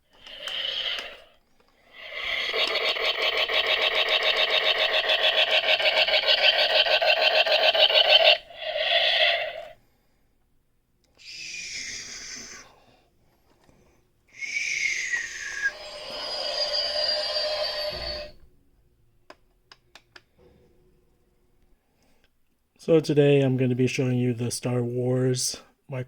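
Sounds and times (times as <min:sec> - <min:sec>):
pulsing electronic engine effect: 0:02.0 - 0:09.7.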